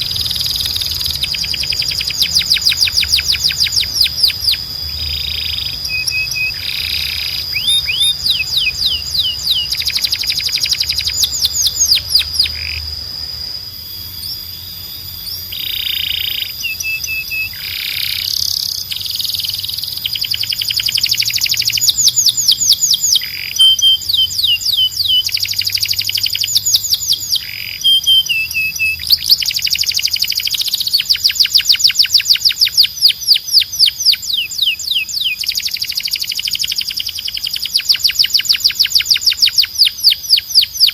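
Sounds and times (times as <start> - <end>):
canary singing trills: 0.0 - 40.9
steady high whistled tone: 0.0 - 40.9.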